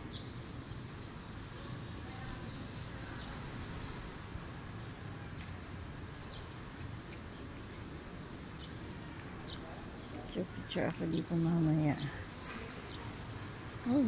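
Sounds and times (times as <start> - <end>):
birds chirping: 4.8 - 14.0.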